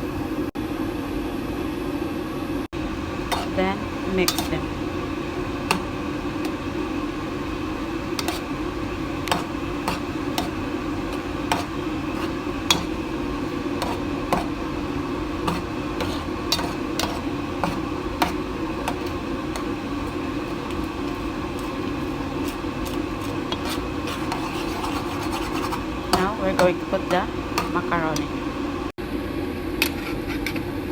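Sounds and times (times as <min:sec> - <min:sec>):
steady hum: 0:00.0 - 0:29.6
utensil stirring thick sauce: 0:02.8 - 0:28.8
utensil knocking against pan: 0:09.2 - 0:14.6, 0:15.4 - 0:28.3.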